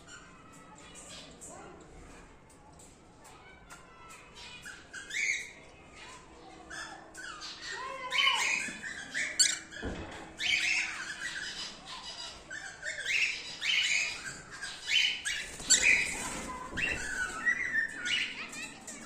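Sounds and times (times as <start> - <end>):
cockatiels squawking: 6.7 - 18.7.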